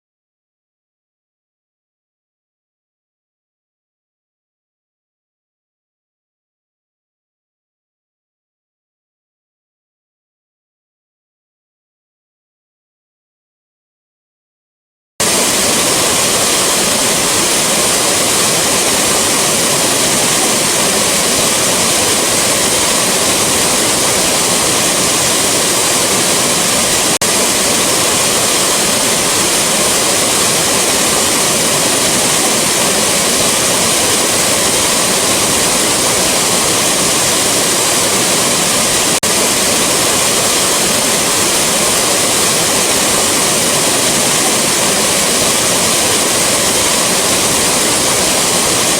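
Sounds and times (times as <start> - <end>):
waterfall rushing: 15.2 - 48.9.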